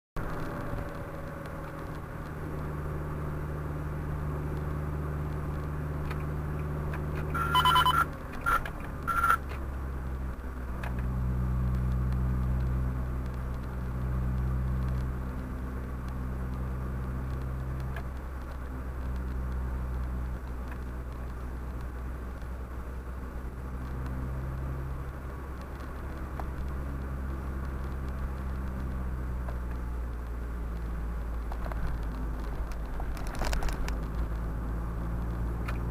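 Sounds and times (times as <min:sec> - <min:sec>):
engine hum and road noise: 0:00.2 - 0:35.9
short electronic beeps: 0:07.3 - 0:09.4.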